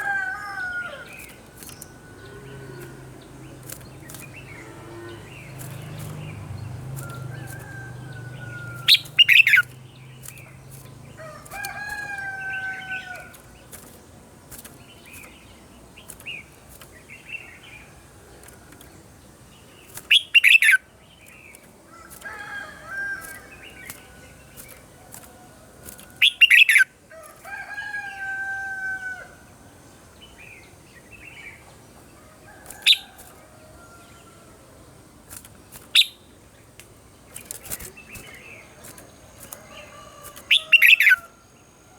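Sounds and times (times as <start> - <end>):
bulbul singing: 0.0 - 27.0, 35.7 - 41.9.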